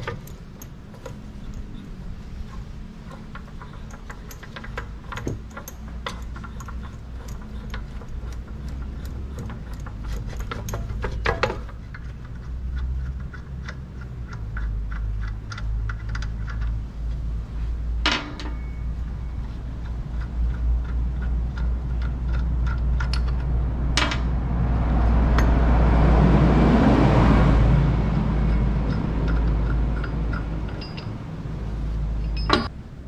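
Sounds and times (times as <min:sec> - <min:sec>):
metal tools clinking: 0:00.0 - 0:12.1, 0:18.0 - 0:19.4, 0:28.5 - 0:31.2, 0:32.2 - 0:32.7
metal clatter: 0:00.0 - 0:16.8, 0:18.0 - 0:19.0.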